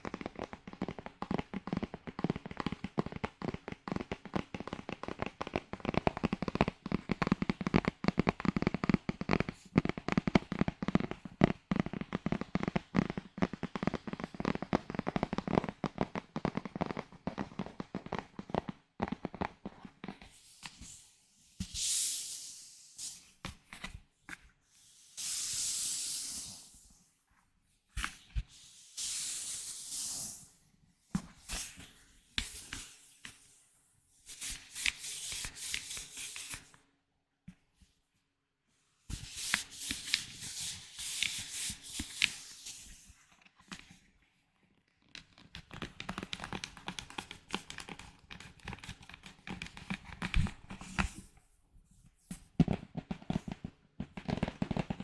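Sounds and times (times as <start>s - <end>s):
rapid dense crackling taps: 0.0s - 20.2s, 45.6s - 50.3s, 52.6s - 55.0s.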